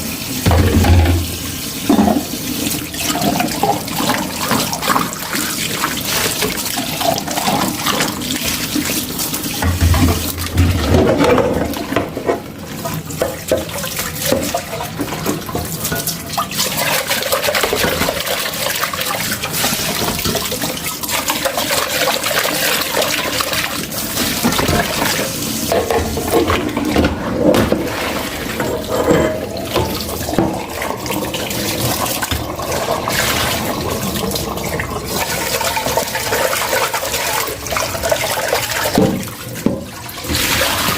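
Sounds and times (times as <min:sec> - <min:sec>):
tap running into sink: 0:00.4 - 0:02.4, 0:09.6 - 0:12.4, 0:38.9 - 0:40.9
dishware knocking: 0:00.5 - 0:02.3.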